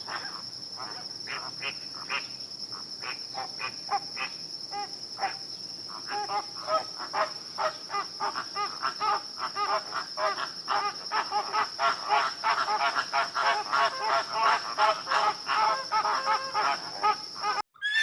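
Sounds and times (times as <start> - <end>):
high insect drone: 0.0 - 17.6
short pitched animal calls: 17.8 - 18.0.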